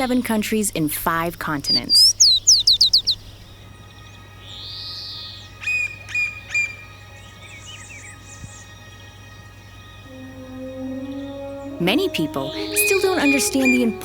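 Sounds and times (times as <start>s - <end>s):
wild birds calling: 1.6s - 14.0s
faint steady drone: 3.2s - 14.0s.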